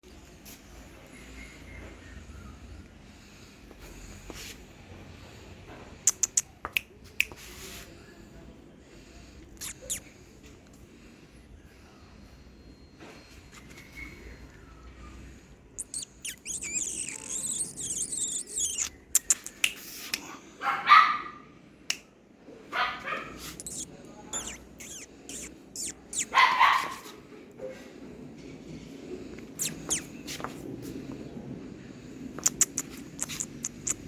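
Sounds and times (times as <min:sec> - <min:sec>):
sharp clicks: 0:06.1 - 0:06.5
puppies yapping: 0:15.8 - 0:18.9.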